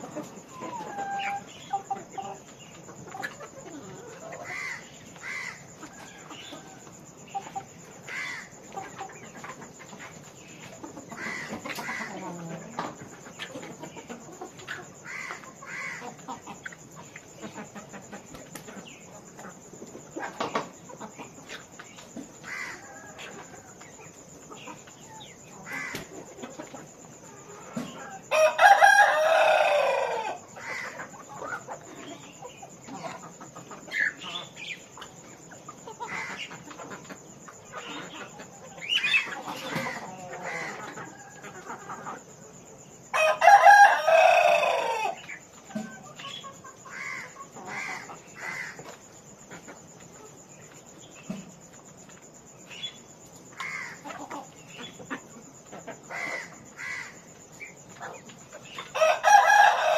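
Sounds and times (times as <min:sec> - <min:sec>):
chickens clucking: 0:00.0 - 0:59.9
rooster crowing: 0:28.2 - 0:30.9, 0:43.1 - 0:45.9, 0:58.9 - 0:59.9.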